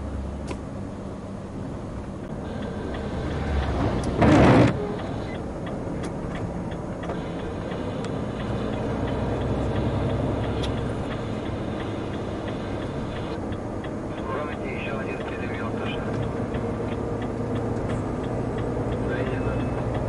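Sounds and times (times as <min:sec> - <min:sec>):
road noise: 0:00.0 - 0:20.0
truck engine running: 0:00.0 - 0:20.0.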